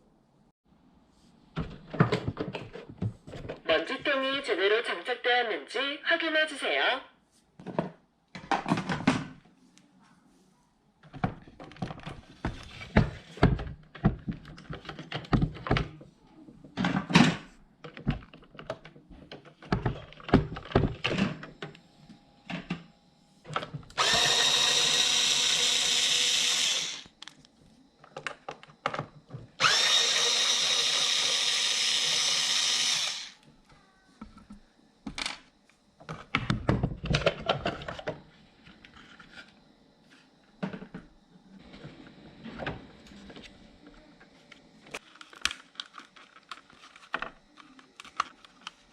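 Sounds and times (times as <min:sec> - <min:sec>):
small electric motor whirring: 0:23.9 - 0:27.3, 0:29.6 - 0:33.4.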